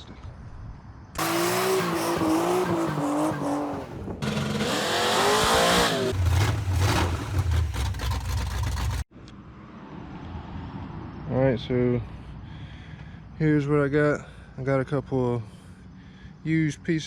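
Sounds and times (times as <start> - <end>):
vehicle engine revving: 1.2 - 9.1.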